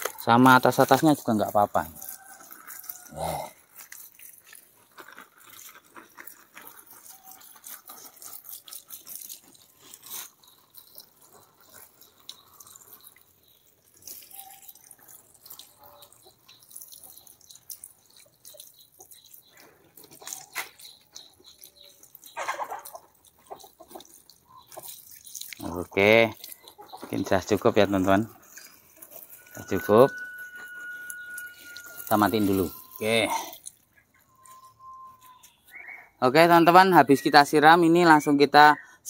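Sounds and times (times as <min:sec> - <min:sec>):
tap water splashing on plants: 0:00.0 - 0:03.0, 0:07.0 - 0:29.0.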